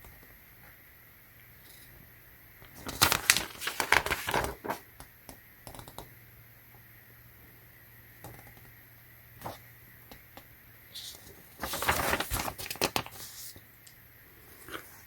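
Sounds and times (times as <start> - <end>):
packaging crinkling: 2.8 - 4.8, 11.6 - 13.4.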